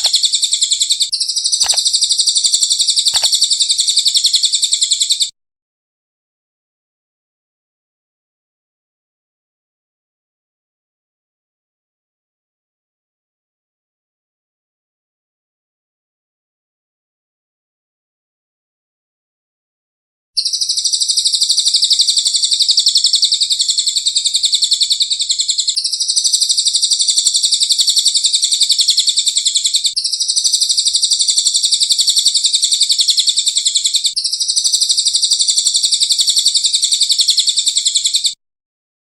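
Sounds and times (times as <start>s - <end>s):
songbird trill: 0.0s - 5.3s, 20.4s - 38.4s.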